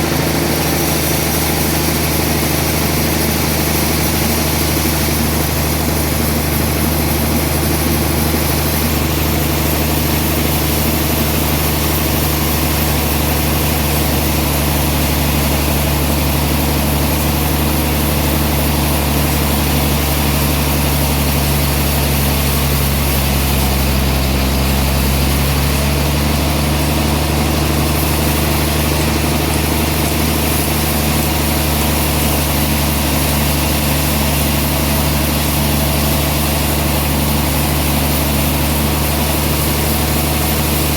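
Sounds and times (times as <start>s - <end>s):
sawmill machinery hum: 0.0s - 40.9s.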